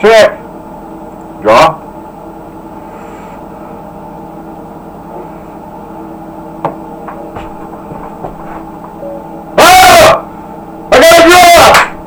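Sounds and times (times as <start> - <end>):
truck engine and pump humming: 0.0 - 9.6.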